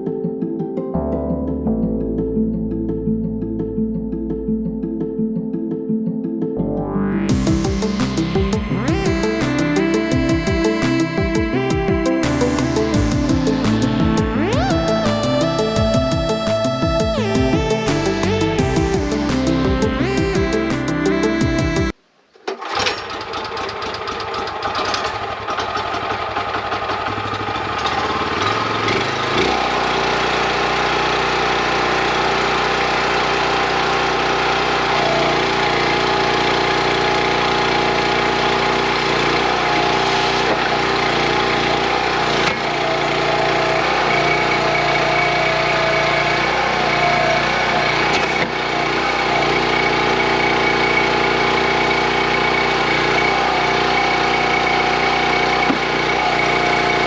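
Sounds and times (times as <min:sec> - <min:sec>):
small engine running: 0:07.3 - 0:21.9, 0:22.6 - 0:57.0.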